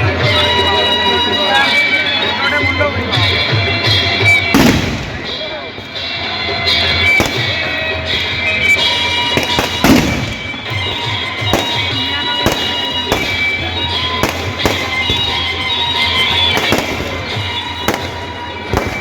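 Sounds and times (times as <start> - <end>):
music playing: 0.0 - 19.0
fireworks bangs: 4.2 - 6.0, 6.7 - 19.0.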